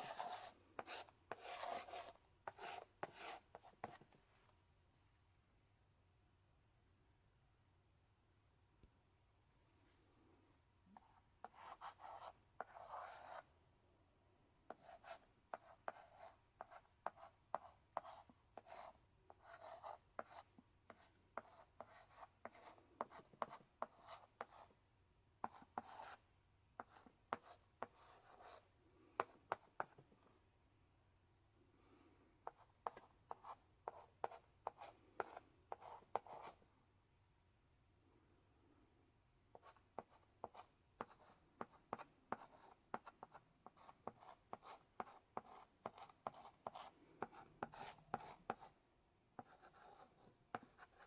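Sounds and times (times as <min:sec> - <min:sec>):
chalk scratching on blackboard: 0:00.0 - 0:04.0, 0:11.0 - 0:13.4, 0:14.7 - 0:24.7, 0:32.5 - 0:36.6, 0:39.6 - 0:48.7, 0:49.4 - 0:51.0.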